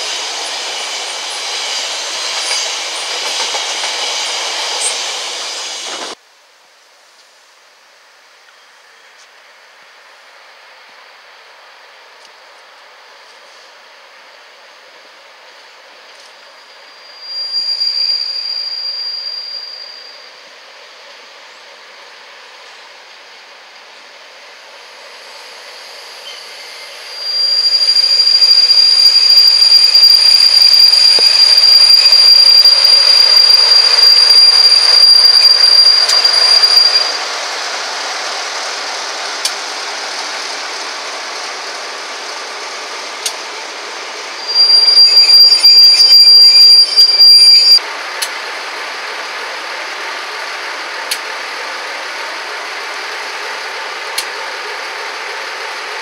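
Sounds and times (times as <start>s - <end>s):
train rolling rumble: 0.0s - 6.2s, 8.3s - 56.0s
train wheels squealing: 0.0s - 6.2s, 15.7s - 21.6s, 24.8s - 38.2s, 44.3s - 47.8s.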